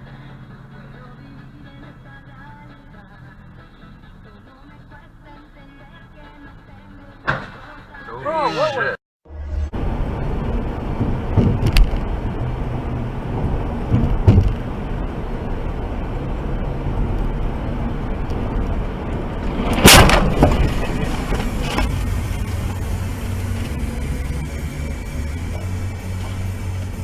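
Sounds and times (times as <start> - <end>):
car road and engine noise: 0.0 - 27.0
loud bang: 19.4 - 22.9.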